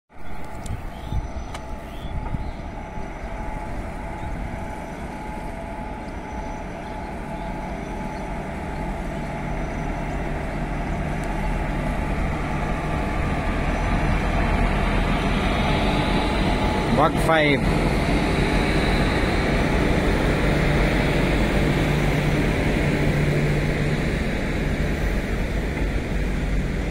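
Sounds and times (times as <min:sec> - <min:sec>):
electric locomotive hum: 0:00.1 - 0:26.9
train wheels rumbling on rail: 0:00.1 - 0:26.9.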